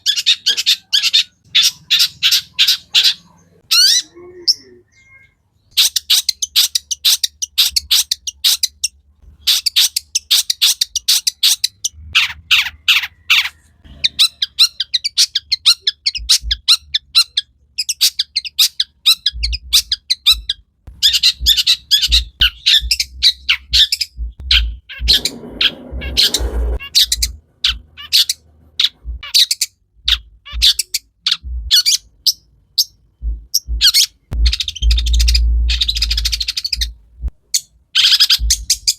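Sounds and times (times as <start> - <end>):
bird chattering song: 0.0 - 38.9
low steady hum: 19.0 - 37.5.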